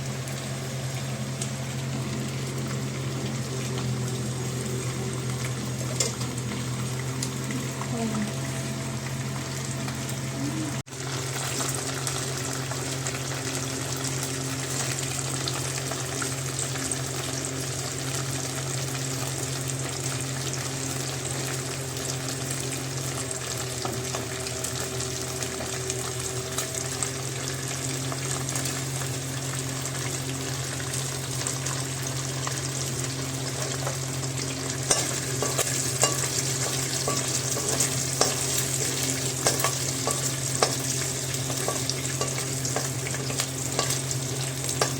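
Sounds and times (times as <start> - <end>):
food sizzling in a pan: 0.0 - 44.9
spoon scraping a pan: 34.8 - 44.9.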